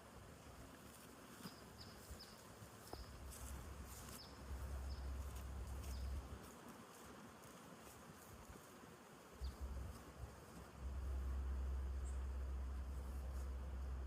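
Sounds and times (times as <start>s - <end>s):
small birds chirping: 0.9s - 6.6s, 9.3s - 14.0s
low rumble: 3.2s - 6.4s, 9.4s - 14.0s.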